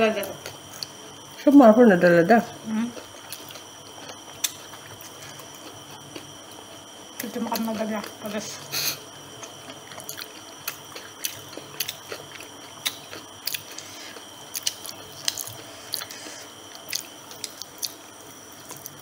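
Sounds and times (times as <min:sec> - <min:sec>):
chewing: 0:02.9 - 0:08.2, 0:09.3 - 0:18.0, 0:18.6 - 0:19.0
fried chicken crunching: 0:09.4 - 0:18.0.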